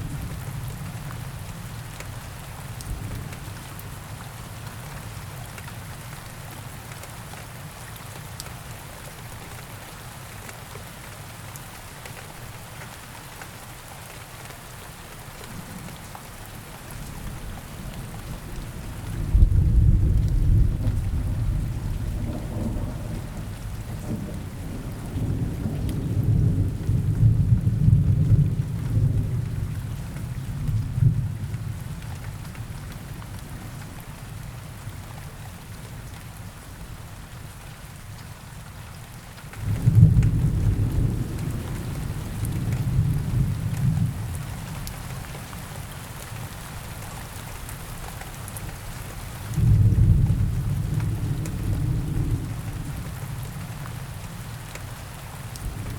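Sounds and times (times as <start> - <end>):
steady rain in a forest: 0.0 - 55.9
deep rolls of thunder: 19.1 - 29.6, 39.6 - 44.2, 49.6 - 53.1.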